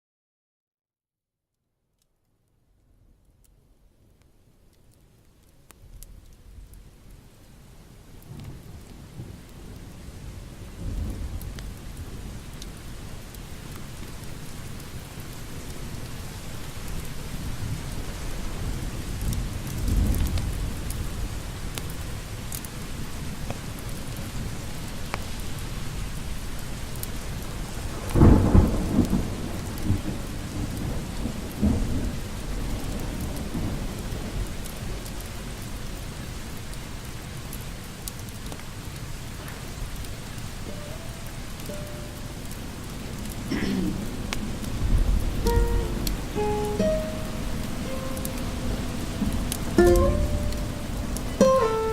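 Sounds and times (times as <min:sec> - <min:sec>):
heavy rain: 0:04.4 - 0:51.9
thunder rumbling: 0:08.6 - 0:12.6, 0:17.5 - 0:21.8, 0:27.6 - 0:35.0, 0:41.0 - 0:51.9.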